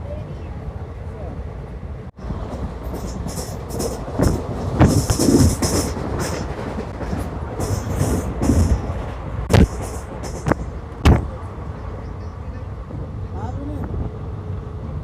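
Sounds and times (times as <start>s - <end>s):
passenger train rumbling: 0.0s - 15.0s
wheels knocking over rail joints: 2.5s - 11.3s.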